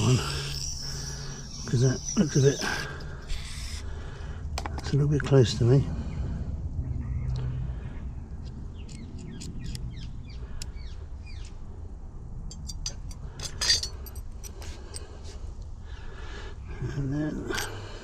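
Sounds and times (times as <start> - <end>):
small birds chirping: 0.0 - 4.0, 6.0 - 11.7
metal parts and tools clicking: 12.4 - 15.1, 17.5 - 18.0.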